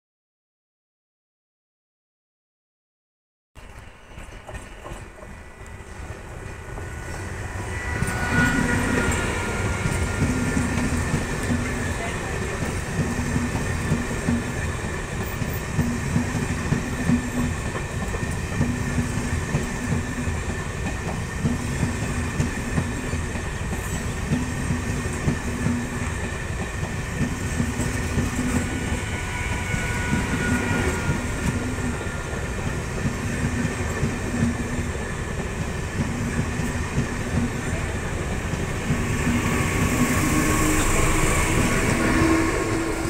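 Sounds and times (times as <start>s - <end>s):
train wheels rumbling on rails: 3.6s - 43.0s
clickety-clack of wheel knocks: 12.6s - 25.9s.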